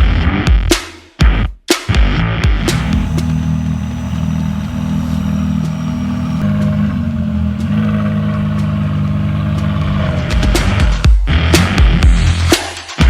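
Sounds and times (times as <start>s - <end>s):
car engine idling: 2.6s - 11.2s.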